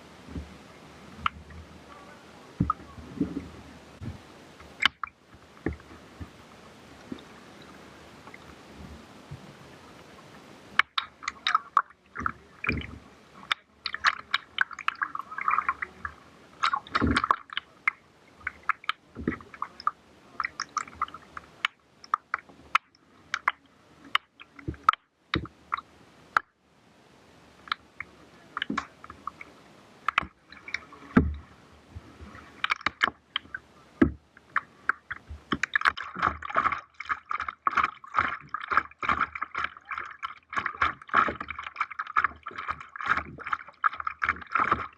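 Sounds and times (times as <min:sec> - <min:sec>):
paddle splashing water: 0:00.0 - 0:44.9
sharp clicks: 0:30.1 - 0:31.3.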